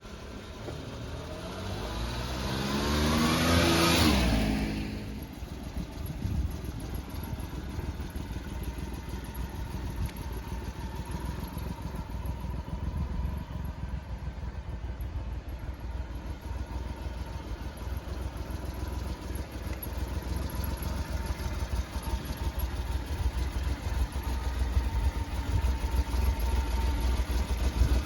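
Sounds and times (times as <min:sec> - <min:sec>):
vehicle driving past: 0:00.7 - 0:05.3
engine idling rumble: 0:04.1 - 0:28.0.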